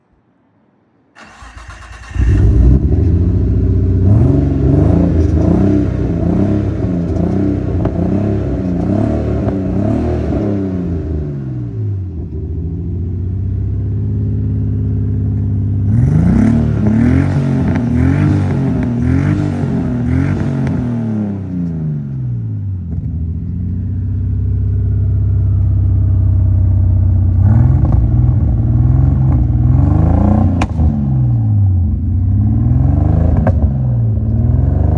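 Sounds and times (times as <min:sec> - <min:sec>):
car engine starting and revving: 0:01.2 - 0:34.9.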